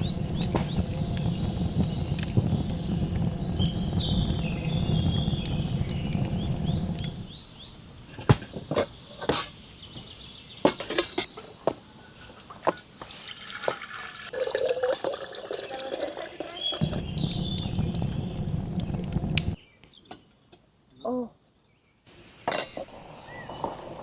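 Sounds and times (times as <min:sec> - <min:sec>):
liquid pouring and dripping: 0:00.0 - 0:07.2, 0:13.1 - 0:19.6
container filling: 0:13.1 - 0:19.5.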